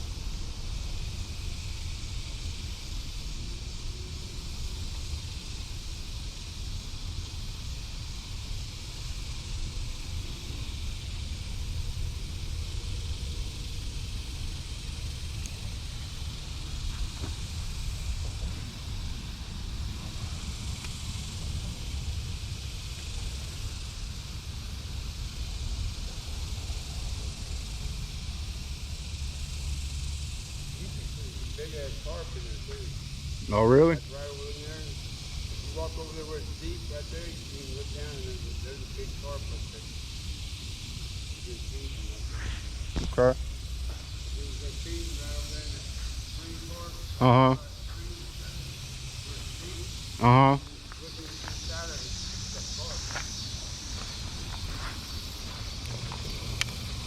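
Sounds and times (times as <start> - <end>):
low unsteady rumble: 0.0 - 57.0
outdoor hiss: 0.0 - 57.0
wind buffeting microphone: 50.8 - 57.0.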